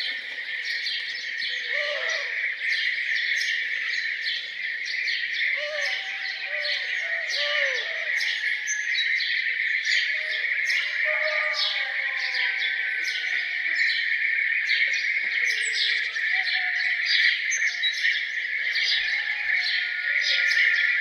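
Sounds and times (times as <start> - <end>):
birds chirping: 0.0 - 7.4.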